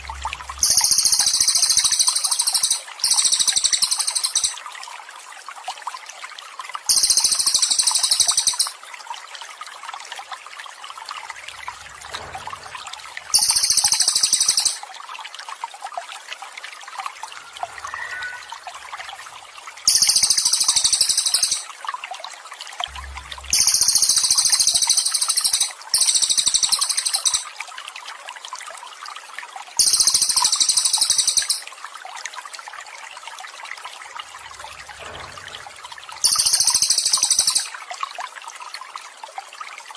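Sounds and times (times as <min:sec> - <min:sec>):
running water trickling: 0:00.0 - 0:39.9
songbird trilling: 0:00.1 - 0:04.6, 0:06.9 - 0:08.7, 0:13.3 - 0:14.8, 0:17.4 - 0:19.1, 0:19.9 - 0:21.7, 0:23.5 - 0:27.4, 0:36.2 - 0:37.7.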